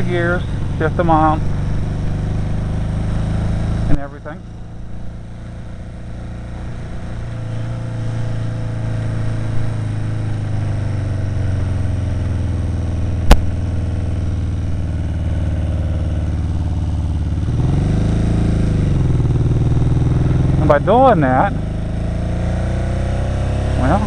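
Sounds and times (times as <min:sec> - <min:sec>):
motorcycle engine running: 0:00.0 - 0:24.0
sharp knock: 0:13.2 - 0:13.6.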